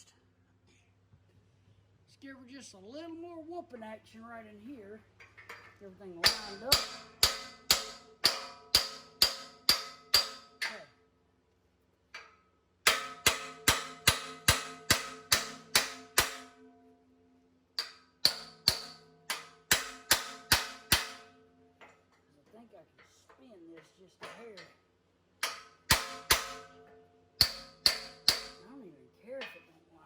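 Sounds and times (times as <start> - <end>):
hammer striking steel: 5.4 - 10.9, 12.2 - 16.8, 17.8 - 22.2, 25.4 - 29.7.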